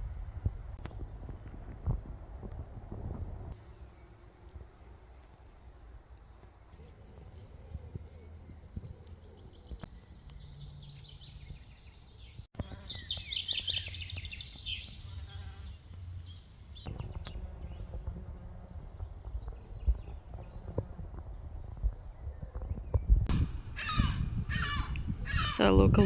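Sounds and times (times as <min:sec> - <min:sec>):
songbirds chirping: 0:03.3 - 0:26.0
low outdoor rumble: 0:15.0 - 0:26.0.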